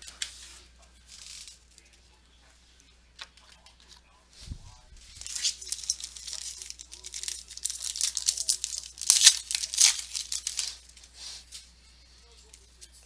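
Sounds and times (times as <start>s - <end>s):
foil wrapper tearing and crinkling: 5.2s - 10.9s.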